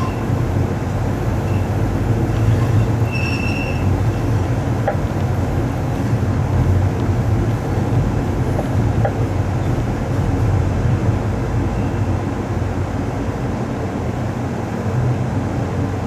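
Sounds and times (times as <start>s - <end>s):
train wheel squeal: 0.0s - 0.4s, 1.4s - 4.4s, 11.7s - 12.2s
train rumbling: 0.0s - 16.0s.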